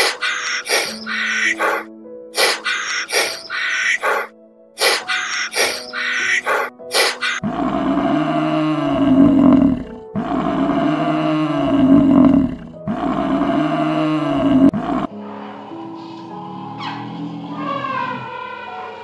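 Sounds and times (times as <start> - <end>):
short sharp bursts: 2.4 - 7.4.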